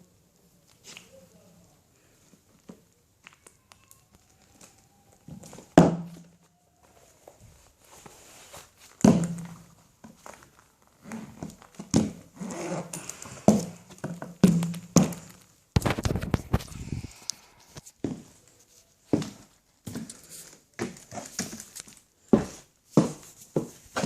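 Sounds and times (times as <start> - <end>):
high heels striking plastic: 9.0 - 10.2, 13.5 - 16.6.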